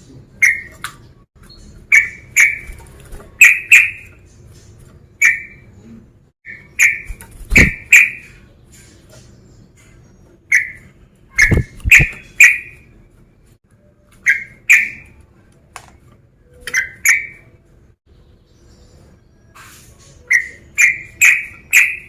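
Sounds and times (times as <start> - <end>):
bulbul sharp chirping: 11.4 - 12.8.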